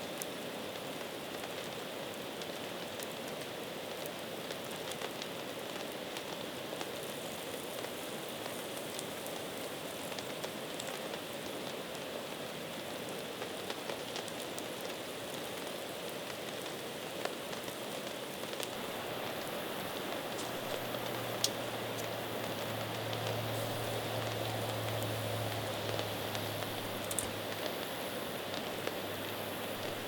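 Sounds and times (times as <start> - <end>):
rain falling: 0.0 - 30.0
raindrops striking sharply: 18.6 - 30.0.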